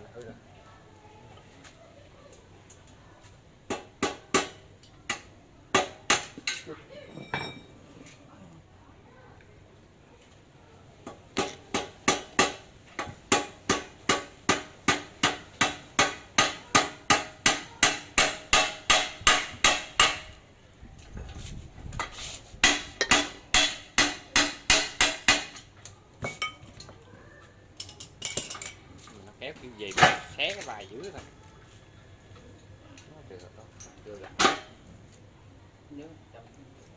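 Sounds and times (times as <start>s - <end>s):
hammer striking metal: 3.7s - 6.6s, 11.4s - 20.4s, 22.6s - 25.6s.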